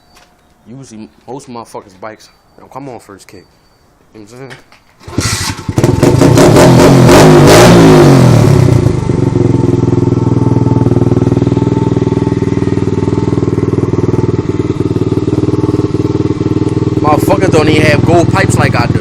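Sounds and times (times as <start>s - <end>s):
dirt bike engine revving: 5.0s - 9.5s
dirt bike engine idling: 8.6s - 19.0s.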